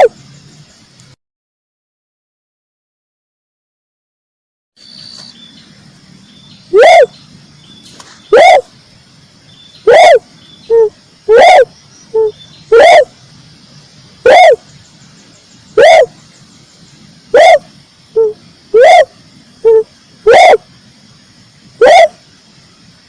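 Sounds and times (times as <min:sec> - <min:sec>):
dove cooing: 0:06.7 - 0:07.2, 0:08.3 - 0:08.7, 0:09.8 - 0:13.1, 0:14.2 - 0:14.7, 0:15.8 - 0:16.2, 0:17.3 - 0:20.7, 0:21.8 - 0:22.2.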